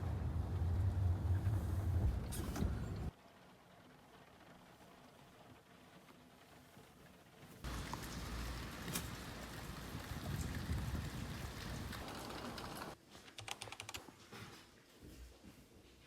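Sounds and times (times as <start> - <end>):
rain hiss: 7.6 - 13.0.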